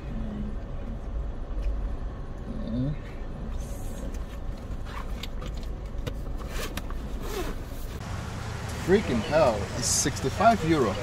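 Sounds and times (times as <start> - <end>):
car engine idling: 7.8 - 11.0.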